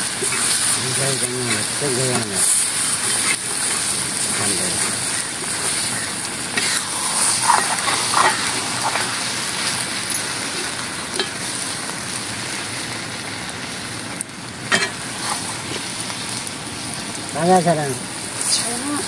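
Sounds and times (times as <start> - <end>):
vegetables sizzling in a pot: 0.0 - 19.0
metal ladle scraping a pot: 6.6 - 9.1.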